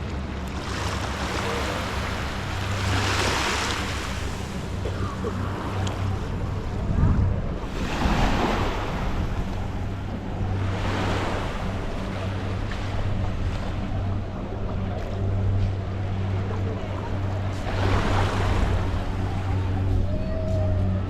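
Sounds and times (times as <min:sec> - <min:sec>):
boat engine humming: 0:00.0 - 0:21.0
water splashing: 0:00.4 - 0:06.1.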